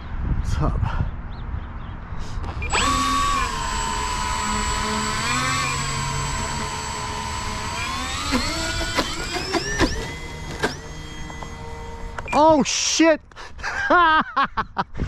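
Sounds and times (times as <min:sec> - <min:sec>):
model plane motors whining: 0:02.4 - 0:12.6
sharp clicks: 0:02.4 - 0:12.6.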